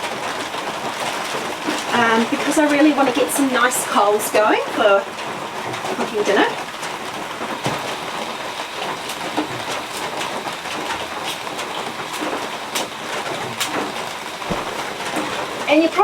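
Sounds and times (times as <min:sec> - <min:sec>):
heavy rain falling: 0:00.0 - 0:16.0
sharp ticks and drips: 0:06.6 - 0:16.0.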